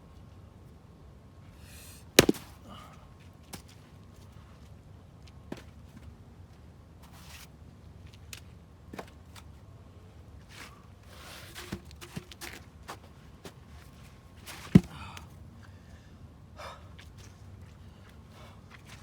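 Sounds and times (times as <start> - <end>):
sharp loud knock: 2.2 - 2.4
footsteps: 2.2 - 2.5
small knocks: 2.2 - 2.5
rustling: 2.2 - 2.6.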